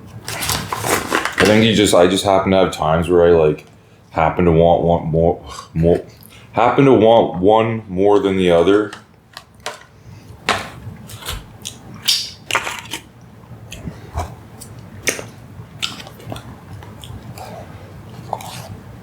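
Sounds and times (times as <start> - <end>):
mouth clicks and smacks: 11.1 - 13.1, 13.7 - 18.9
chewing and mouth noises: 11.1 - 19.0.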